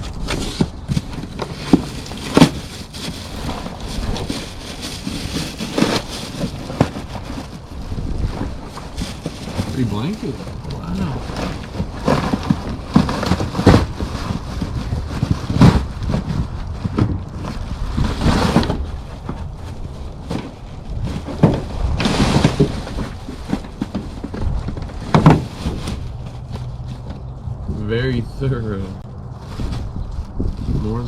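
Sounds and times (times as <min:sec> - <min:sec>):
packaging knocks and clunks: 0:00.0 - 0:27.2.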